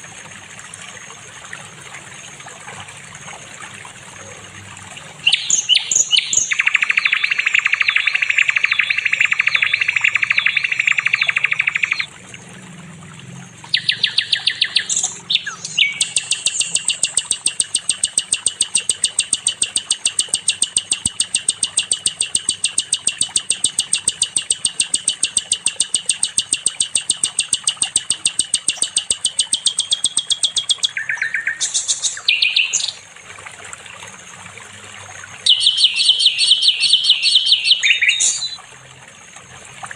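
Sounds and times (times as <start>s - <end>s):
songbird singing fast rattling trills: 5.2s - 12.1s, 13.7s - 33.1s, 35.4s - 38.6s.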